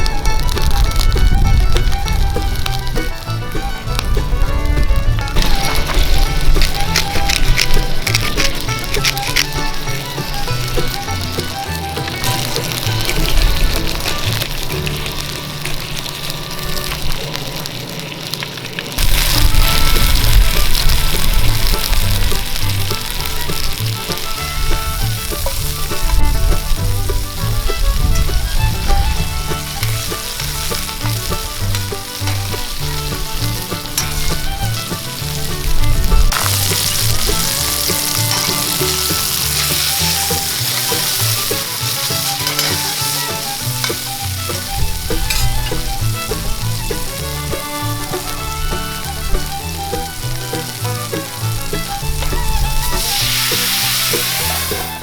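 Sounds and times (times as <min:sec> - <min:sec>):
background music: 0:00.0 - 0:17.2, 0:19.0 - 0:55.0
patties sizzling over a campfire: 0:00.0 - 0:55.0.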